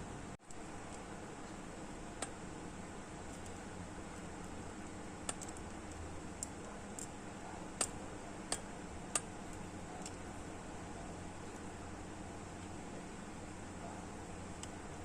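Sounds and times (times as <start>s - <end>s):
steady low hiss: 0.0s - 15.0s
sharp light clicks: 4.4s - 10.2s.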